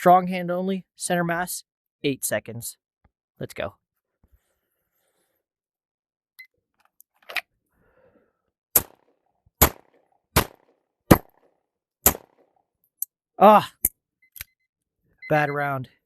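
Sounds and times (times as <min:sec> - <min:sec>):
pistol shots: 0:08.8 - 0:09.0, 0:09.6 - 0:11.4, 0:12.0 - 0:12.4.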